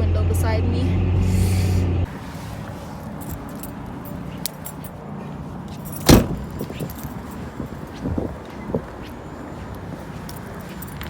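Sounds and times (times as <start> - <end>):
light jingling clicks: 3.0 - 5.0, 5.7 - 11.0.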